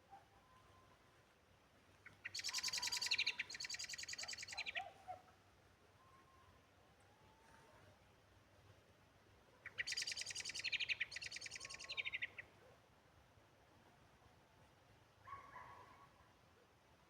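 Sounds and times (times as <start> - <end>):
songbird trilling: 2.2 - 4.9, 9.6 - 12.4.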